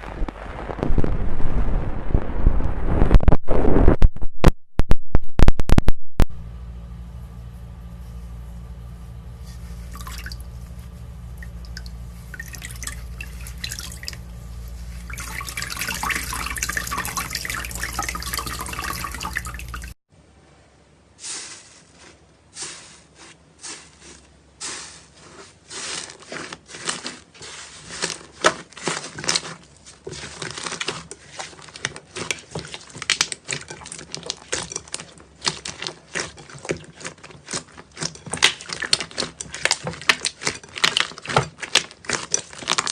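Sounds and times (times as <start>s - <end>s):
low hum: 0.0s - 20.0s
slime squishing: 21.2s - 42.9s.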